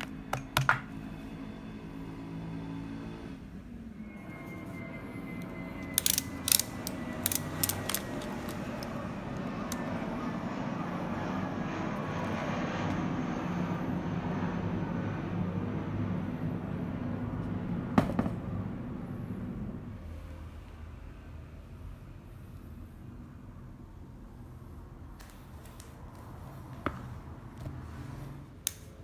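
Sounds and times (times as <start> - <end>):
sharp clicks: 5.8 - 9.0.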